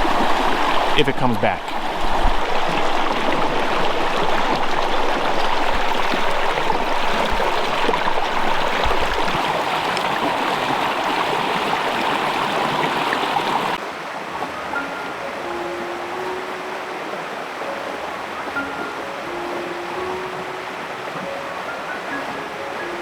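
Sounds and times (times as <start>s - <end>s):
brook rushing over rocks: 0.0s - 13.8s.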